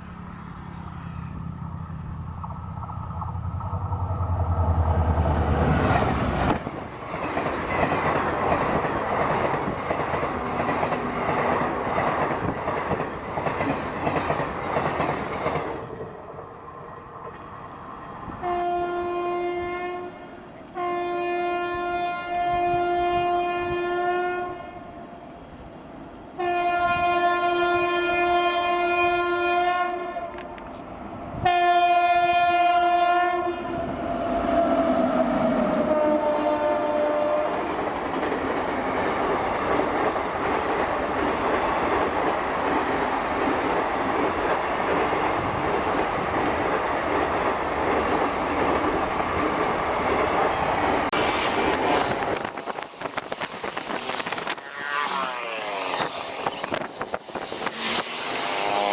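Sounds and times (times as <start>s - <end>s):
wheels clattering over rail joints: 0.0s - 15.9s, 51.1s - 58.9s
train rolling past: 0.0s - 58.9s
locomotive horn blasts: 18.4s - 24.9s, 26.4s - 30.4s, 31.4s - 33.9s, 35.8s - 37.5s.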